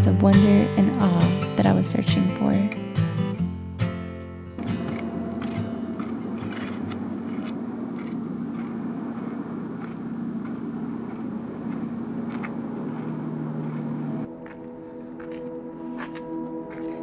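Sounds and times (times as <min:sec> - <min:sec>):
engine-like hum: 0:03.4 - 0:17.0
low tone: 0:03.4 - 0:17.0.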